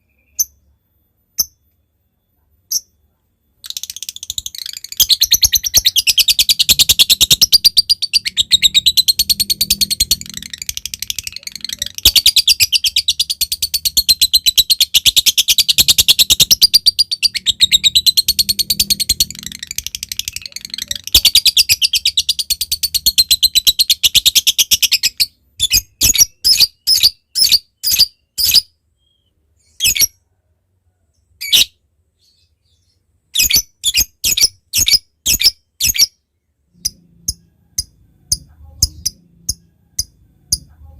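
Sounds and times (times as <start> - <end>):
lovebird chattering trill: 3.6 - 28.6, 36.8 - 40.7.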